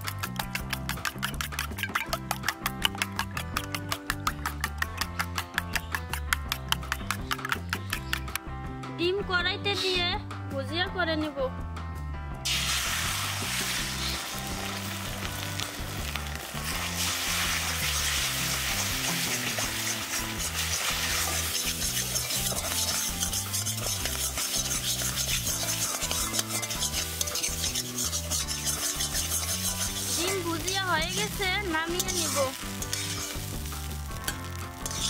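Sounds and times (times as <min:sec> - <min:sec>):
eggs sizzling in hot oil: 0:00.0 - 0:08.4, 0:12.4 - 0:35.0
metal spatula scraping pan: 0:16.8 - 0:35.0.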